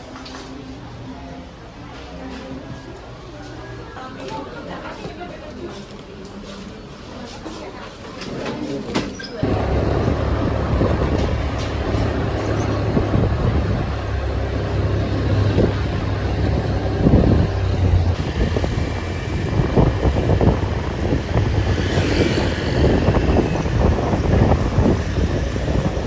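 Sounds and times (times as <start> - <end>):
low vehicle rumble: 9.4 - 26.0
wind buffeting microphone: 9.4 - 26.0.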